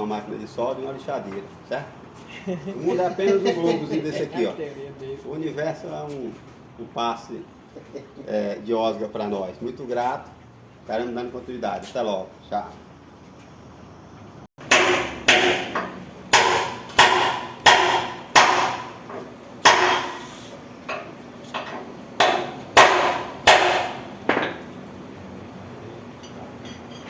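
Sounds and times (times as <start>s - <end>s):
hammer striking metal: 14.6s - 24.6s.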